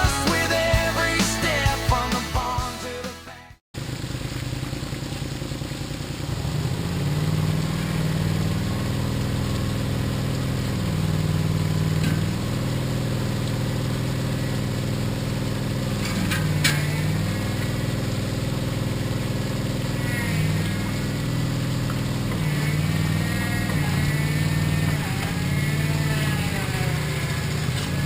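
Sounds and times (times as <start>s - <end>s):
loader engine running: 0.0s - 3.6s.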